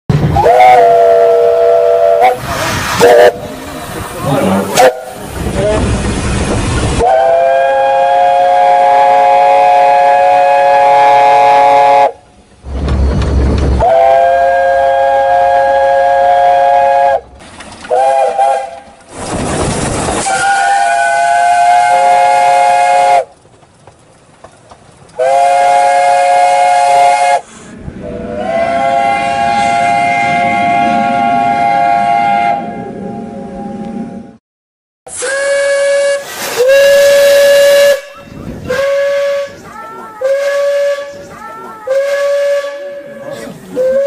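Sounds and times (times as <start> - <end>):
rush of steam: 0.1 - 17.2, 17.9 - 23.3, 25.2 - 32.6, 35.1 - 44.0
steam locomotive whistle: 0.2 - 3.5, 4.2 - 5.3, 7.0 - 12.2, 13.8 - 17.2, 17.9 - 18.8, 20.2 - 23.3, 25.2 - 33.9, 35.1 - 44.0.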